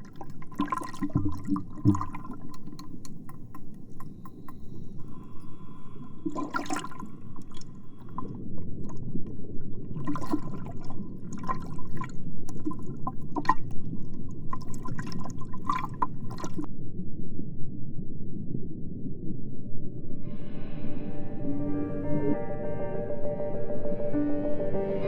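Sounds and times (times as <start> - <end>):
water sloshing and gurgling: 0.0 - 16.7.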